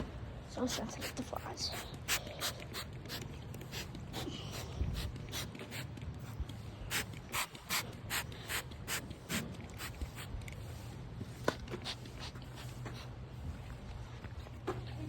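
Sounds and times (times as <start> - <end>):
spray bottle hissing squirts: 0.7 - 10.3.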